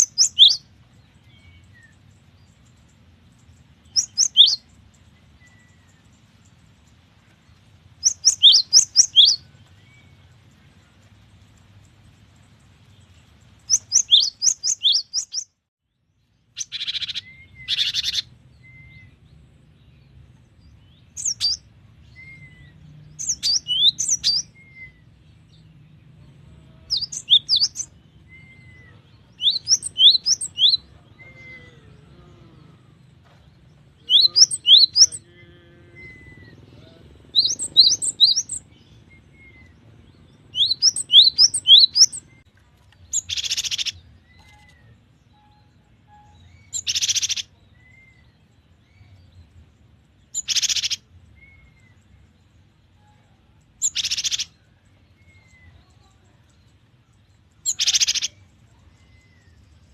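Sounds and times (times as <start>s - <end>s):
bird singing high sweeping notes: 0.0s - 6.8s, 8.0s - 10.4s, 11.9s - 15.5s, 16.6s - 42.5s.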